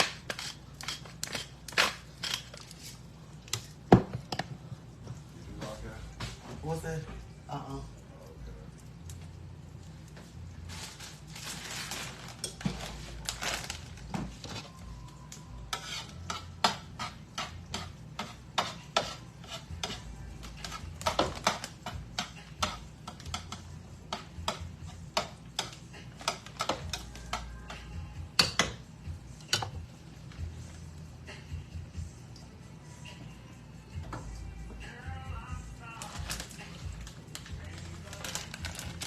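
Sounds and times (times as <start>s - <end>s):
metal utensil scraping cookware: 0.0s - 2.8s, 15.6s - 27.5s.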